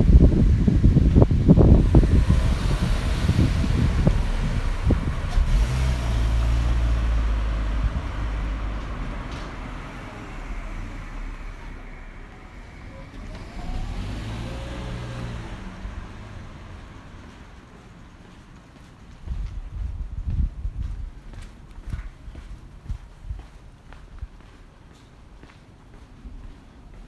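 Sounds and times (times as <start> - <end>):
vehicle engine passing: 0.0 - 19.0
wind buffeting microphone: 0.0 - 24.7.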